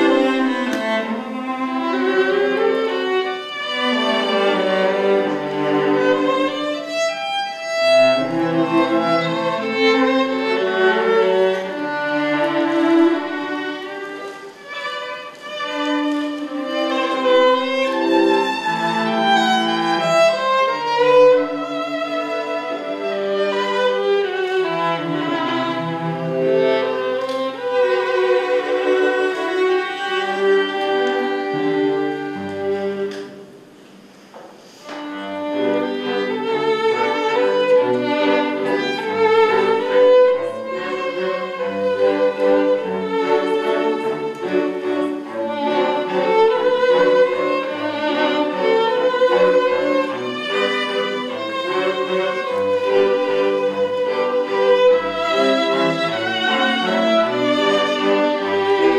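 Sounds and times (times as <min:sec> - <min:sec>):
string quartet playing: 0:00.0 - 0:58.9.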